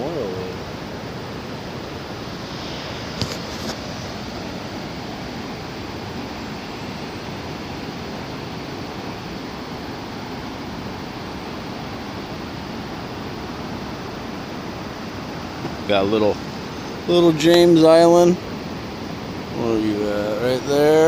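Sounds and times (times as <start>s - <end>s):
distant ocean surf: 0.0s - 21.0s
wind: 0.0s - 21.0s.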